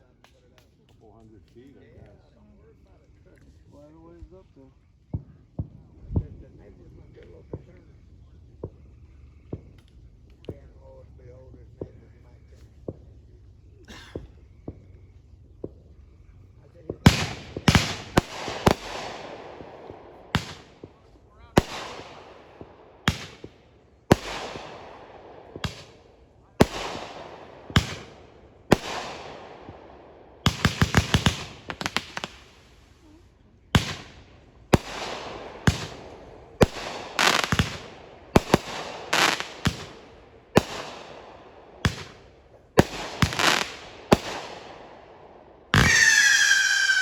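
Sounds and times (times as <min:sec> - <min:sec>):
fireworks bangs: 0:16.6 - 0:47.0
rapid crackling pops: 0:16.8 - 0:47.0.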